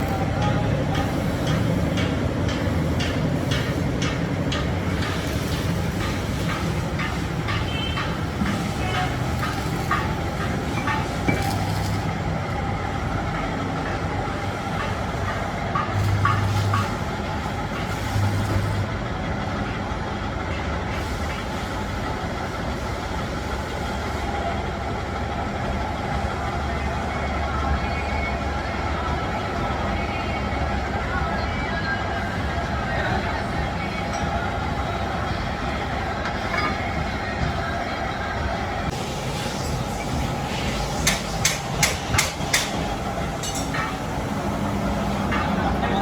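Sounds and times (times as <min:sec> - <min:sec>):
heavy machinery rumbling: 0:00.0 - 0:46.0
regular metallic clack: 0:40.6 - 0:44.3.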